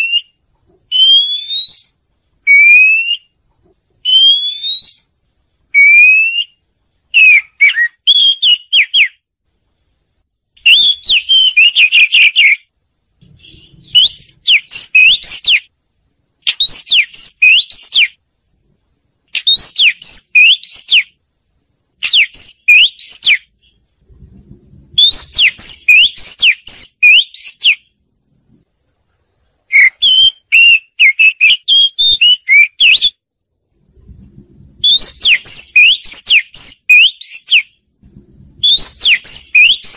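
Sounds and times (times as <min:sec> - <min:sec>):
bird singing whistled phrases: 0:00.0 - 0:03.4, 0:04.0 - 0:05.1, 0:05.7 - 0:09.2, 0:10.6 - 0:15.7, 0:16.4 - 0:18.2, 0:19.3 - 0:21.2, 0:22.0 - 0:23.8, 0:25.0 - 0:27.9, 0:29.7 - 0:33.2, 0:34.8 - 0:37.8, 0:38.6 - 0:39.9.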